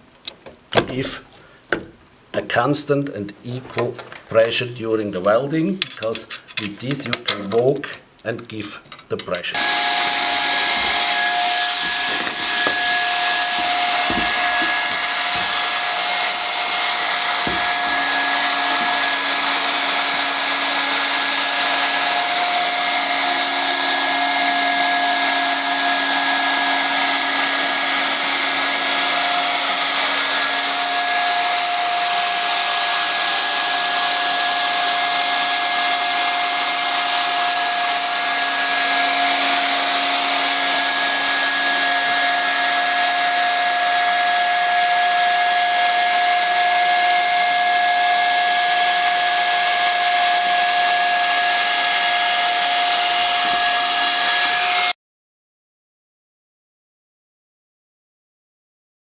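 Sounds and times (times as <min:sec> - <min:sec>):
motor whine: 0:09.6 - 0:54.9.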